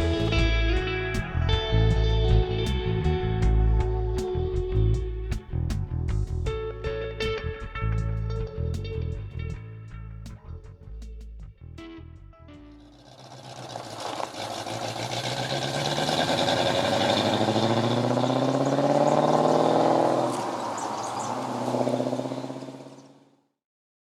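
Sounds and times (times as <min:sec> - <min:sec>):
car engine accelerating: 0:00.0 - 0:10.0, 0:12.6 - 0:23.2.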